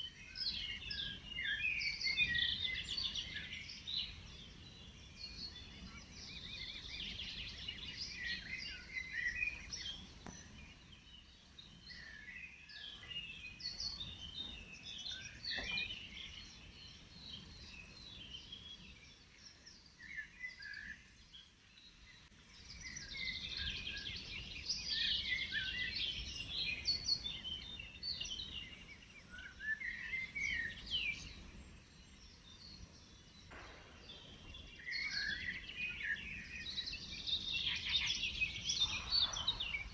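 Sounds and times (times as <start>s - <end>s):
faint low background noise: 0.0s - 39.9s
songbirds chirping and trilling: 0.0s - 39.9s.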